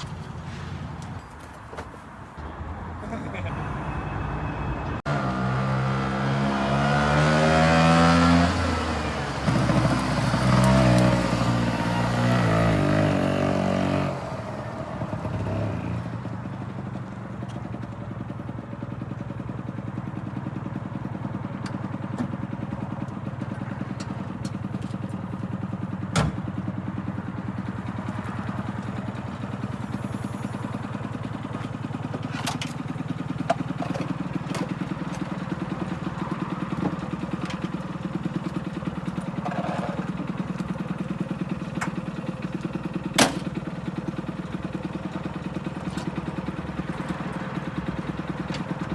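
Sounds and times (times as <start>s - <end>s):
small van engine revving: 5.0s - 16.3s.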